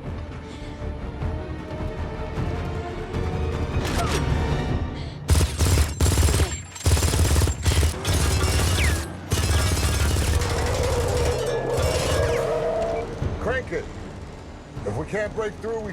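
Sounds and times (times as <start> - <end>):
automatic gunfire: 5.3 - 12.4.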